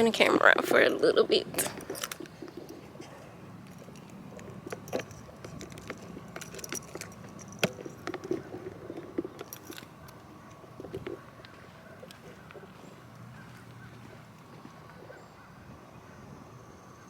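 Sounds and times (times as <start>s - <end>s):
faint outdoor background: 0.0s - 17.0s
camera clicks and rattles on tripod: 1.6s - 3.0s, 3.6s - 14.5s.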